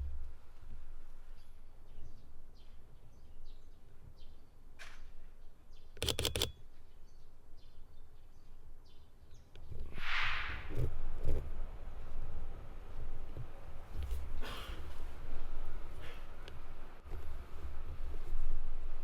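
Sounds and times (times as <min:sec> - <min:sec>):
small birds chirping: 0:01.1 - 0:09.9
sharp clicks: 0:06.0 - 0:06.6
brief hissing rush: 0:09.9 - 0:10.7.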